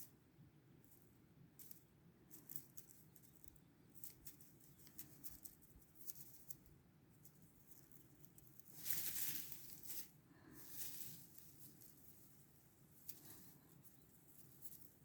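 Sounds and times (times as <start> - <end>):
soft clicks and rustles: 0.9 - 15.0.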